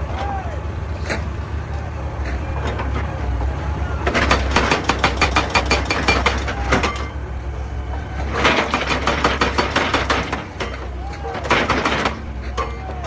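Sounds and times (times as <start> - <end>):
diesel engine running: 0.0 - 13.0
sharp clattering knocks: 4.1 - 7.2, 8.4 - 13.0.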